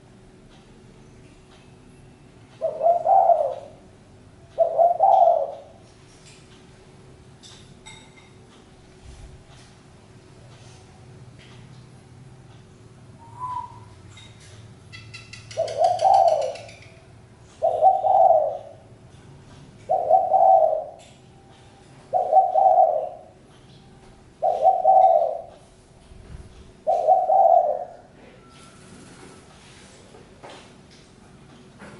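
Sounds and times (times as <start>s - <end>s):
dove cooing: 2.6s - 3.8s, 4.6s - 5.8s, 13.2s - 14.0s, 15.3s - 19.0s, 19.8s - 21.0s, 22.1s - 23.4s, 24.4s - 25.6s, 26.8s - 28.5s
small bird chirping: 13.2s - 18.8s.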